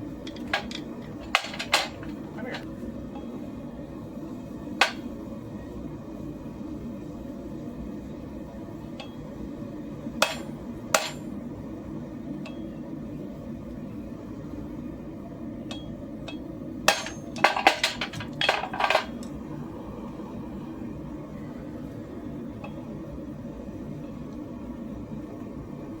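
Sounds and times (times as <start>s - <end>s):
steady low hum: 0.0s - 26.0s
steel clanking against steel: 0.3s - 2.6s, 15.7s - 19.3s.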